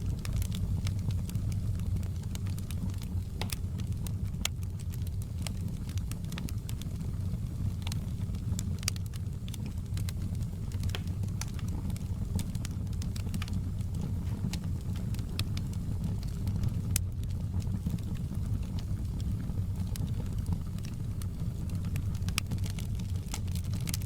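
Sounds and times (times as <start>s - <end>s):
logs crackling and popping: 0.0s - 24.0s
low rumble of flames: 0.0s - 24.0s.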